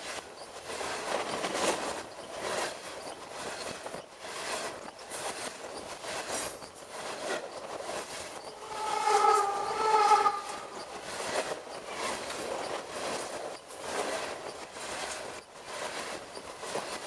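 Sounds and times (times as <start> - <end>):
steel wheels clattering on rails: 0.0 - 17.0
train horn: 8.6 - 10.8.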